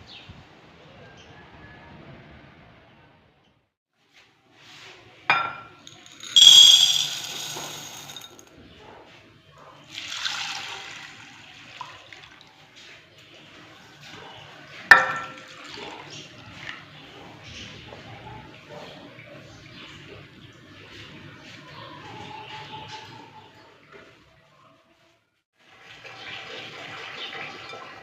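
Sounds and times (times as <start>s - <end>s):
dishes clinking: 5.3s - 8.3s, 14.9s - 15.7s.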